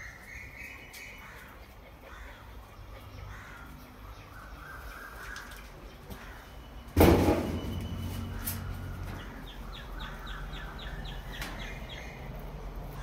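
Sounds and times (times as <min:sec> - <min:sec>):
loud bump: 0:07.0 - 0:08.1
bird chirping rapidly: 0:08.2 - 0:12.3.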